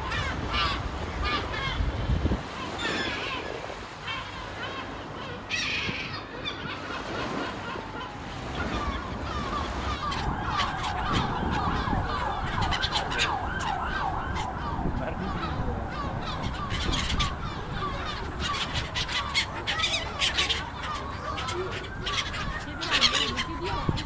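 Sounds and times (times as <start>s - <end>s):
gull laughing calls: 0.0s - 24.0s
gulls calling: 0.0s - 24.0s.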